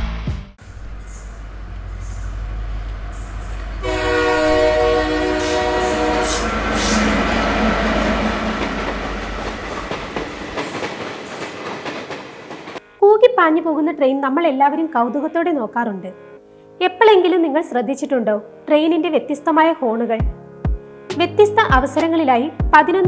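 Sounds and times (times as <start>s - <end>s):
train rumble and wheel clatter: 0.6s - 12.8s
locomotive horn blast: 3.2s - 10.1s.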